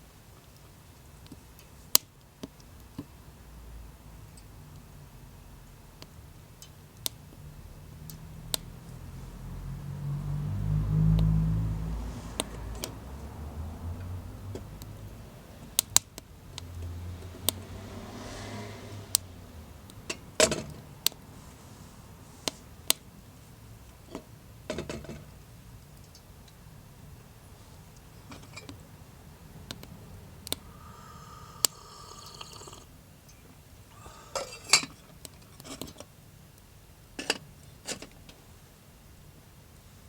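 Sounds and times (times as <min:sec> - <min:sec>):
wood fire crackling: 0:29.5 - 0:31.8.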